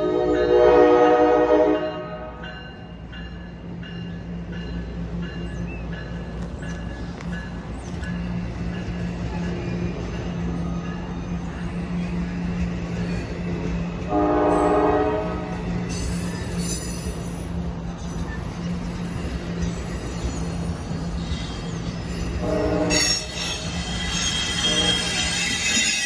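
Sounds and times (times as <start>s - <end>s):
train horn blast: 0.0s - 2.4s, 14.0s - 15.7s, 22.4s - 23.4s, 24.3s - 26.0s
low locomotive hum: 0.0s - 26.0s
wheels and brakes squealing: 15.8s - 26.0s.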